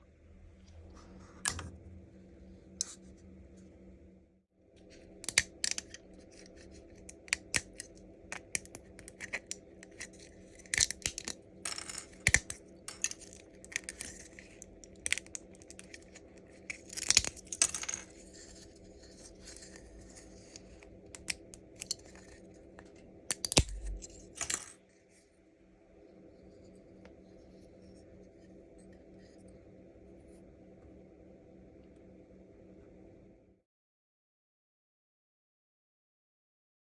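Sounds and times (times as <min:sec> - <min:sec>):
steady low hum: 0:00.0 - 0:33.6
plastic snapping and cracking: 0:05.2 - 0:06.0, 0:07.1 - 0:09.6, 0:10.7 - 0:11.4, 0:12.2 - 0:14.2, 0:16.8 - 0:17.5, 0:23.3 - 0:24.2.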